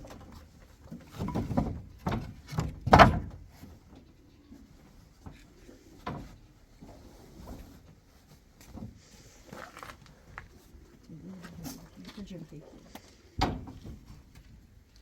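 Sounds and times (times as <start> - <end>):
knocks and thumps: 1.1 - 3.7.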